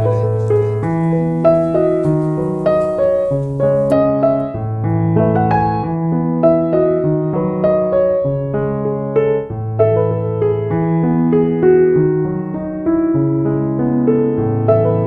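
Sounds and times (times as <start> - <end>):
slow piano music: 0.0 - 3.9.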